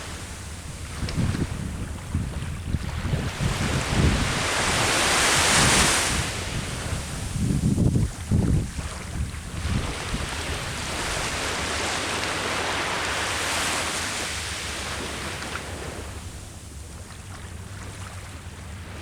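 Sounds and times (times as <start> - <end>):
sea waves washing onto shore: 0.0 - 19.0
wind rumble on microphone: 0.0 - 19.0.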